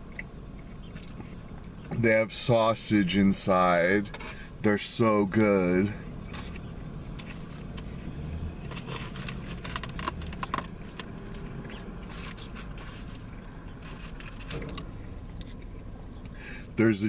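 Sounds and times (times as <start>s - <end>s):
low background hum: 0.0s - 17.0s
styrofoam container crackling: 8.6s - 14.8s.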